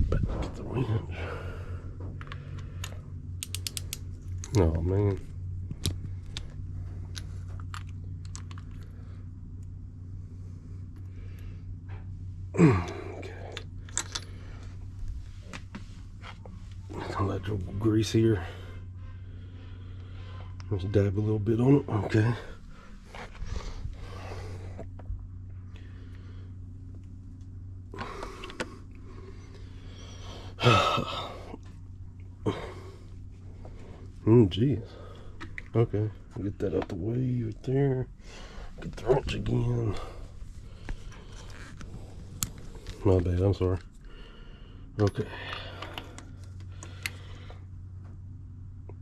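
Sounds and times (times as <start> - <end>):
low hum: 0.0 - 49.0
metallic wrench clicks: 3.4 - 4.0
man clearing his throat: 12.6 - 13.2.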